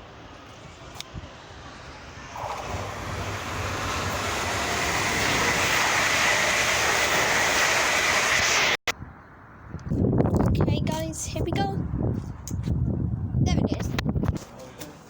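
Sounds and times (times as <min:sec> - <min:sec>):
train wheels rushing on track: 0:00.0 - 0:08.9.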